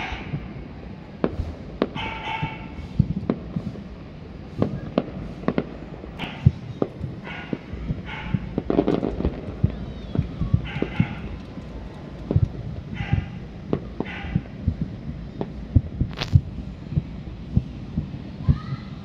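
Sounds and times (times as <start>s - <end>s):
fireworks exploding: 0.0s - 19.0s.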